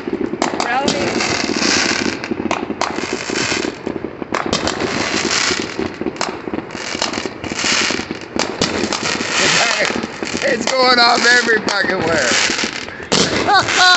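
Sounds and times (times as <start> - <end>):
crackling of firecrackers: 0.0 - 13.9
sharp firework bangs: 0.0 - 13.9.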